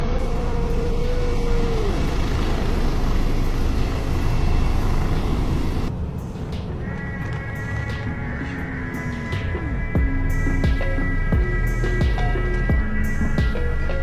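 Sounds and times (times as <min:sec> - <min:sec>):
storm wind: 0:00.0 - 0:10.5.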